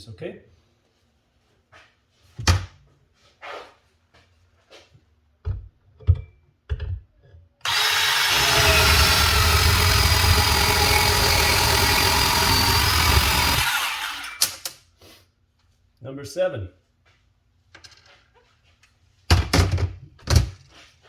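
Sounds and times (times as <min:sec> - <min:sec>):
cordless bandsaw cutting: 0:07.6 - 0:14.8.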